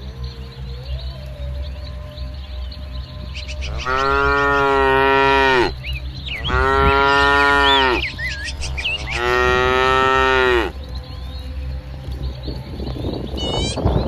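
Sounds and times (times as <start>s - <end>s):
cattle mooing: 3.4s - 10.8s.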